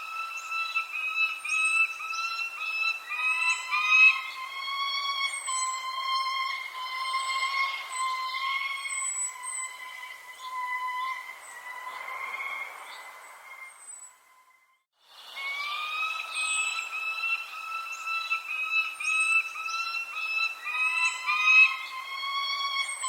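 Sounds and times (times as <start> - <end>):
birds whistling: 0.0 - 14.4, 15.2 - 23.0
high bird chirps: 0.0 - 14.4, 15.5 - 23.0.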